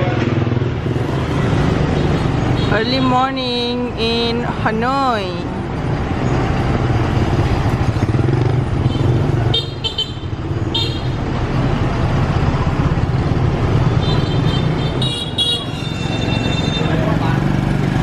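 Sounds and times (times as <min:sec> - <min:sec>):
traffic engines running: 0:00.0 - 0:18.0
horns honking: 0:08.8 - 0:11.2, 0:13.9 - 0:17.2.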